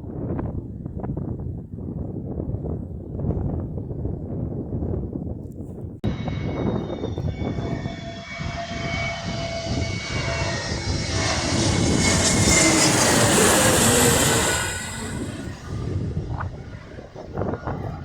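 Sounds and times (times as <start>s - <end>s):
jet airliner passing overhead: 6.1s - 18.0s.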